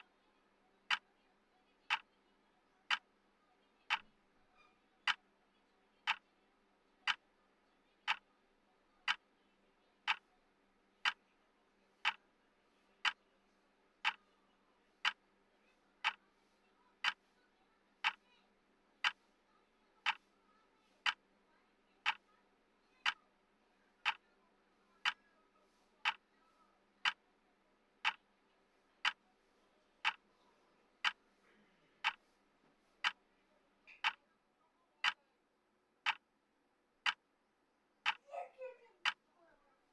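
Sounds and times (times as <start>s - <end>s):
countdown timer ticking: 24.0s - 24.2s, 36.0s - 36.2s.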